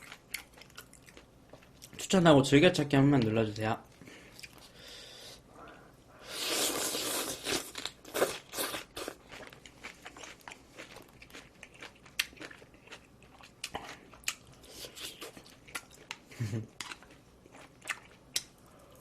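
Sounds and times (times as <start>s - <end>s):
person chewing with clicks: 0.0s - 2.0s, 7.8s - 18.9s.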